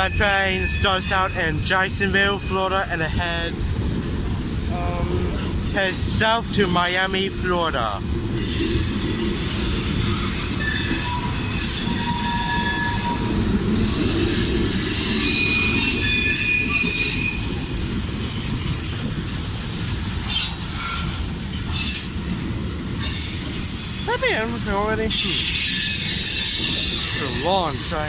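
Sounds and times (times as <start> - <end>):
train wheel squeal: 0.0 - 3.0, 5.4 - 7.1, 8.4 - 18.7, 20.1 - 24.2, 25.0 - 28.0
freight train rumbling: 0.0 - 28.0.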